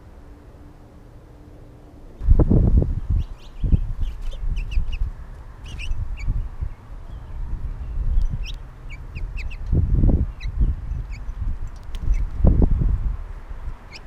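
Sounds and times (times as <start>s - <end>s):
small birds chirping: 3.0s - 12.5s, 13.8s - 14.0s.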